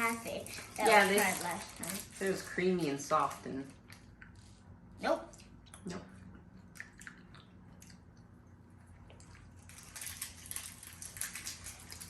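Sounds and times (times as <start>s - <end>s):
person chewing toffee: 5.3s - 12.0s.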